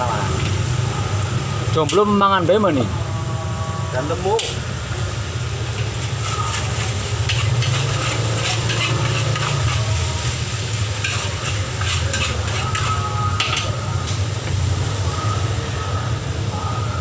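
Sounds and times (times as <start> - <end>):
food sizzling: 0.0 - 17.0
metal spatula scraping a wok: 5.8 - 13.8.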